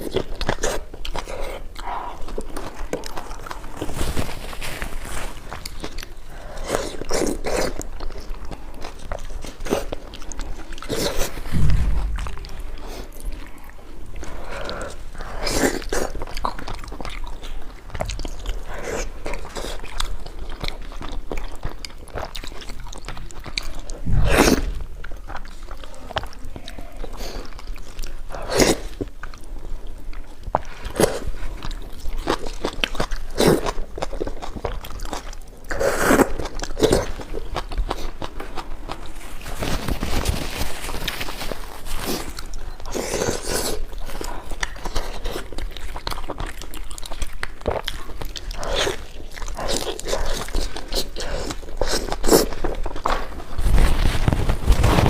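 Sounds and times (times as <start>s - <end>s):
person chewing and crunching food: 0.0s - 55.0s
low thumps: 11.5s - 13.0s, 24.0s - 25.3s.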